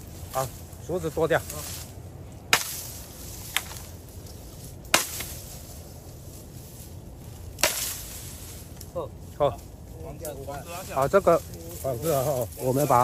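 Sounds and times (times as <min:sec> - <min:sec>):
blade chopping bamboo: 0:02.5 - 0:03.8, 0:04.9 - 0:05.5, 0:07.6 - 0:08.2.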